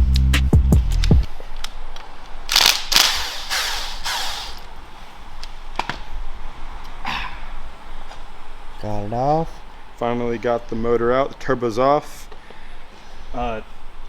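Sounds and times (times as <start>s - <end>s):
loud hissing bursts: 2.4s - 4.8s
sharp tool clicks: 2.5s - 4.7s.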